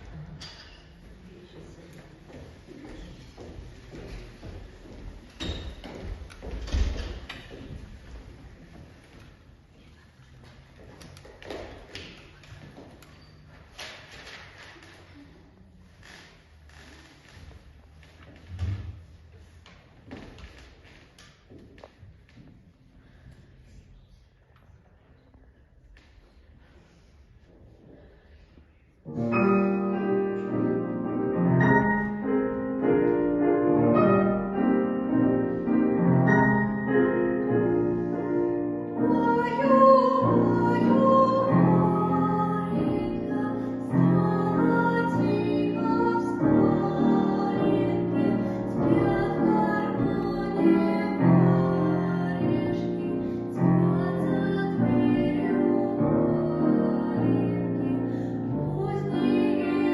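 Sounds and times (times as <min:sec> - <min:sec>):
gentle piano accompaniment: 0:29.0 - 0:59.9
woman singing: 0:39.0 - 0:59.9.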